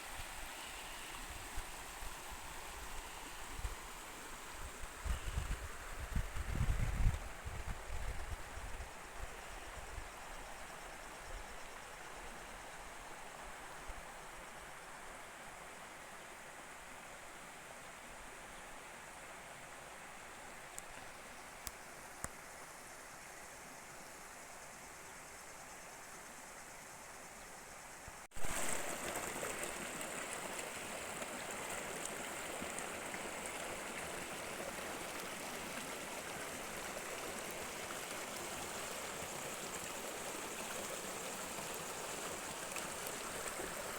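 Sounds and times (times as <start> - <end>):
stream water rushing: 0.0 - 5.1, 28.3 - 43.9.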